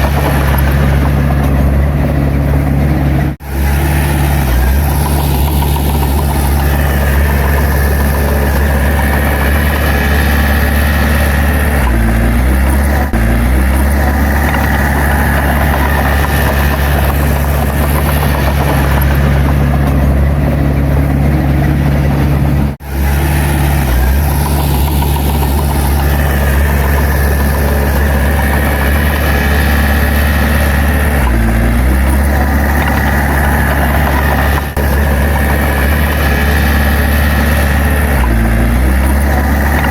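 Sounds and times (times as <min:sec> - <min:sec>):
heavy machine diesel engine: 0:00.0 - 0:39.9.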